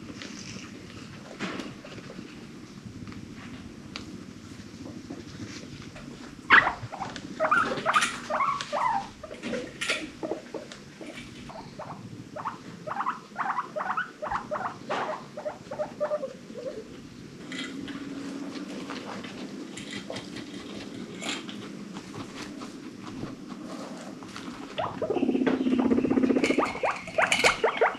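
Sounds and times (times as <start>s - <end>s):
guinea pigs squeaking: 6.5s - 9.6s, 10.2s - 16.8s, 24.8s - 27.9s.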